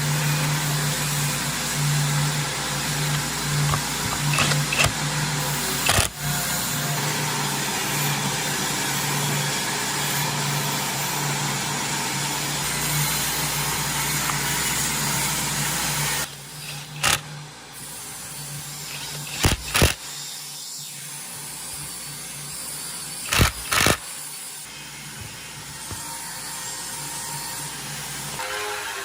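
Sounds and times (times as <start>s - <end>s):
sharp clicks: 19.0s - 20.0s, 23.3s - 24.0s.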